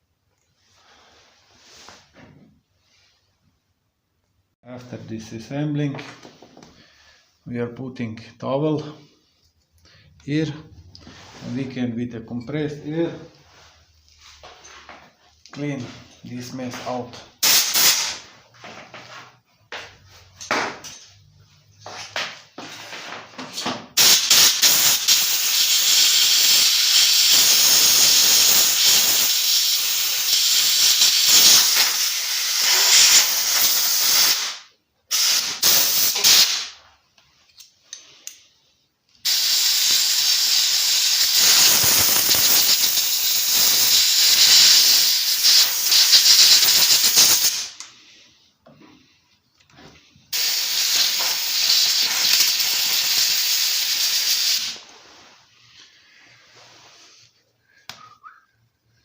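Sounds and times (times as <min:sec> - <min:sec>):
compressed air blow gun hissing: 0:17.4 - 0:18.2, 0:24.0 - 0:36.7, 0:39.2 - 0:47.8, 0:50.3 - 0:54.8.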